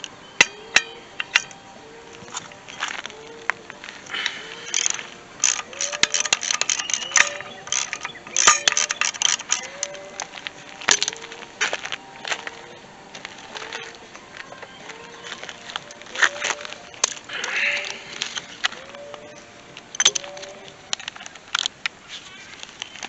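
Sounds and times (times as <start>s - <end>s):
metal clinks: 0.0s - 21.7s
ratchet wrench clicking: 4.6s - 10.2s.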